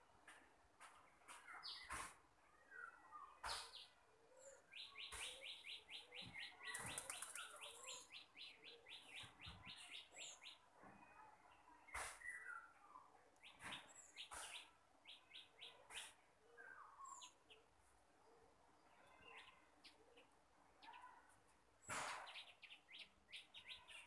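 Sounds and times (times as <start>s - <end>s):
bird chirping: 2.8s - 10.6s, 22.2s - 24.0s.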